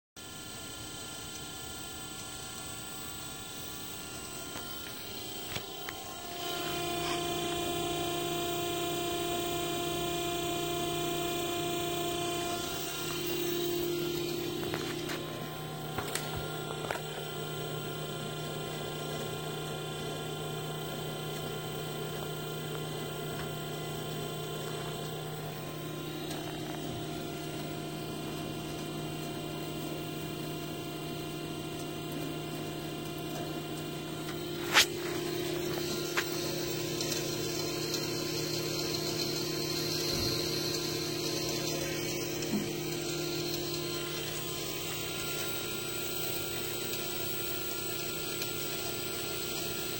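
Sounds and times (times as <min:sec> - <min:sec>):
mechanical hum with held tones: 0:00.2 - 0:49.9.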